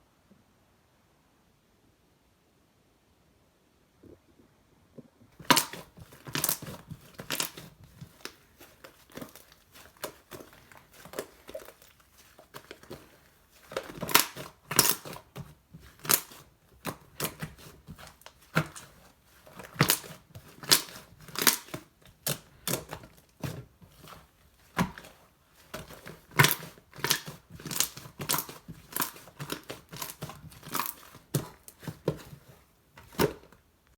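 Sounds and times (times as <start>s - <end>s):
slime squishing and popping: 5.4s - 32.4s.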